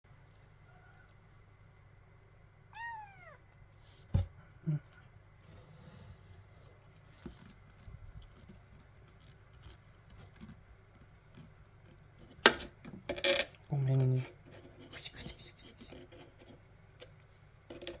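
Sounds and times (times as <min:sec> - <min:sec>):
kitten mewing: 0:02.7 - 0:03.4.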